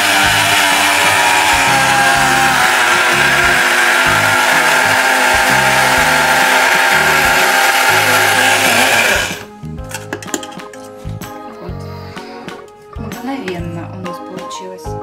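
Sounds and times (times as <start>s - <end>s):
electric grinder grinding sugar: 0.0s - 9.5s
background music with bass: 0.0s - 15.0s.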